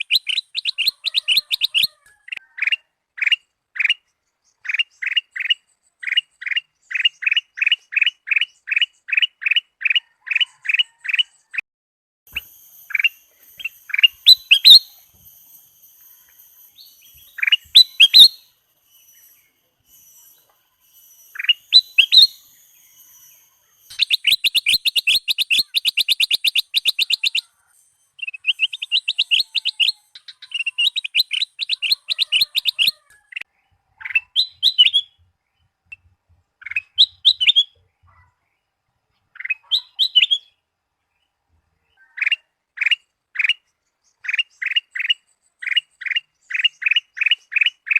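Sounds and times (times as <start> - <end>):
bulbul whistled song: 0.0 - 4.0, 12.3 - 35.2, 35.9 - 37.8, 39.4 - 40.6
rapid trilled bird notes: 12.3 - 33.0.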